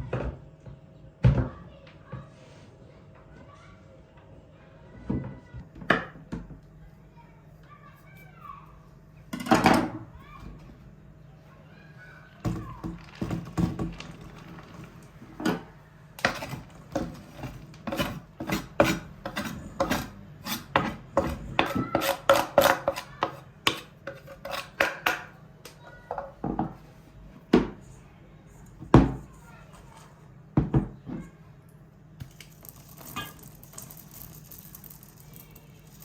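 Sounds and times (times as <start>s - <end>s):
dishes and utensils clinking: 32.5s - 36.0s.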